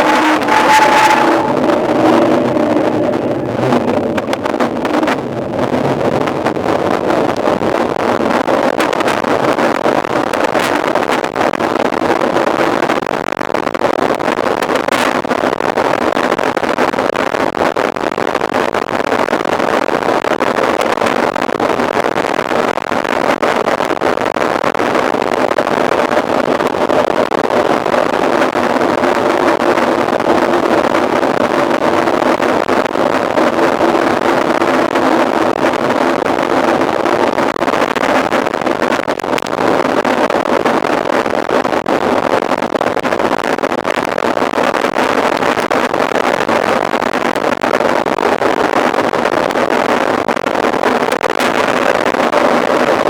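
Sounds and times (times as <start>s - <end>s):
faint hum: 0.0s - 7.7s
wind buffeting microphone: 0.0s - 11.1s, 25.7s - 46.8s.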